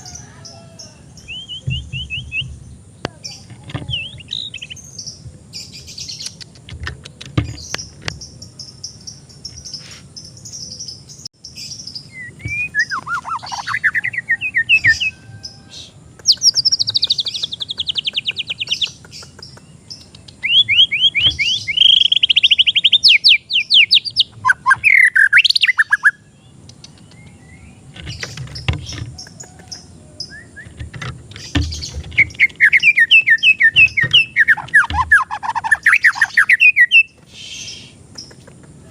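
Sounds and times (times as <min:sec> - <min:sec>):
bird singing whistled song: 0:00.0 - 0:02.6, 0:03.3 - 0:06.4, 0:10.5 - 0:19.3, 0:19.9 - 0:27.8, 0:29.2 - 0:30.8, 0:31.6 - 0:38.4
bird rattling trills: 0:27.8 - 0:38.5.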